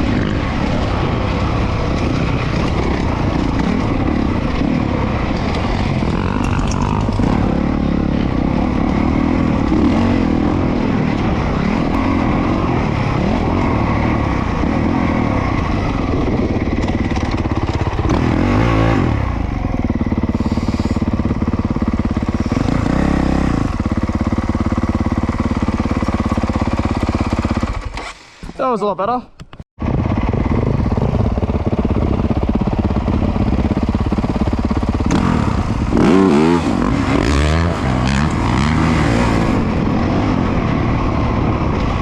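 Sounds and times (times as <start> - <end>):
motocross engine revving: 0.0 - 28.2, 29.9 - 40.5.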